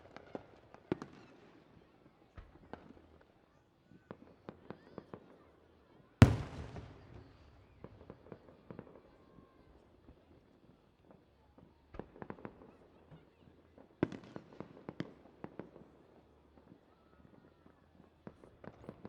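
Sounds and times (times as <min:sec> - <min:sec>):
distant fireworks popping: 0:06.2 - 0:08.1.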